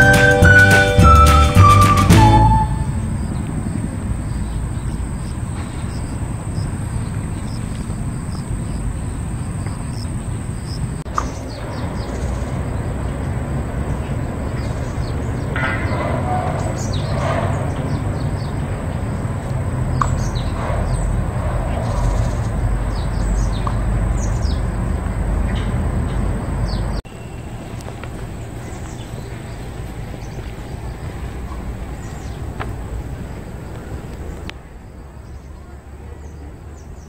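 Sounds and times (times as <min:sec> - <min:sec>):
steady low rumble: 0:00.0 - 0:16.1
small birds chirping: 0:02.9 - 0:37.0.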